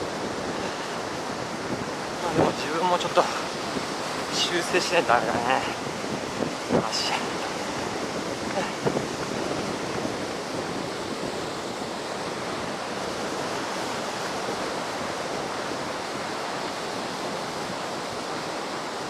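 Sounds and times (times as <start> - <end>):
heavy surf on a beach: 0.0 - 19.0.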